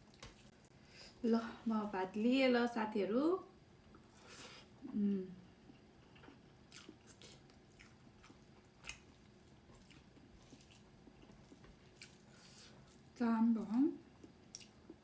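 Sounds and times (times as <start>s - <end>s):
soft chewing and wet mouth clicks: 5.7s - 12.2s, 14.2s - 15.0s.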